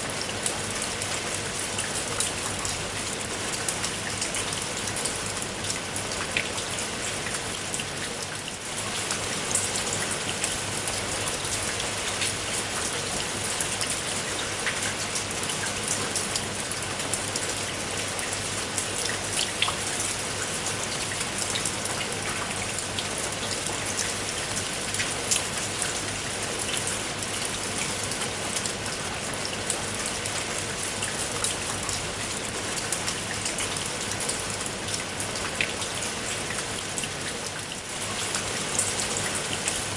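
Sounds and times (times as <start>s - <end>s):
steady rain hiss: 0.0s - 8.0s.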